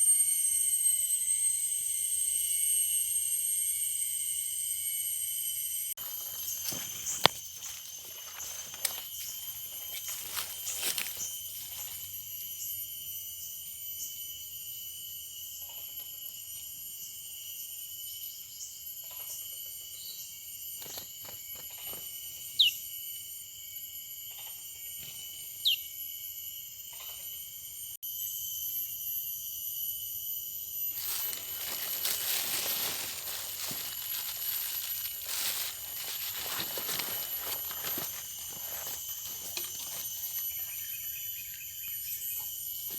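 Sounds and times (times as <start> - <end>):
falling bird chirps: 21.7 - 22.8, 25.1 - 25.9
loud rustling hiss: 30.9 - 38.3.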